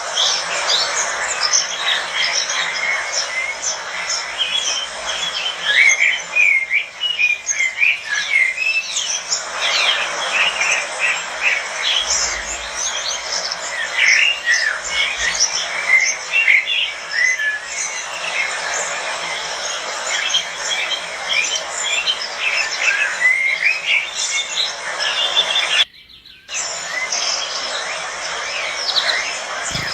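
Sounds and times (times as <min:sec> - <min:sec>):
lovebirds chirping and squeaking: 0:29.7 - 0:29.9.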